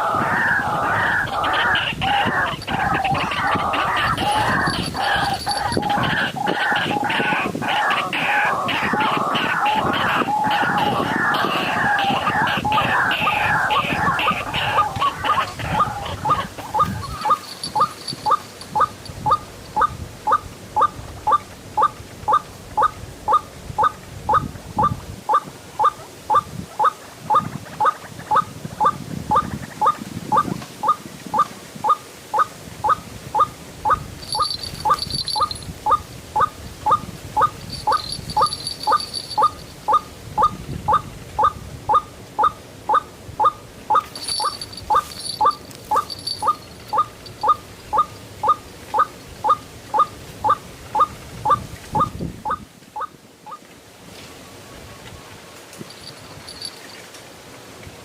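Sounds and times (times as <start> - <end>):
waterhen calling: 0.0 - 53.6, 55.8 - 57.0
high bird chirps: 1.2 - 7.4, 8.9 - 20.9, 33.9 - 36.0, 36.9 - 40.6, 43.9 - 49.1.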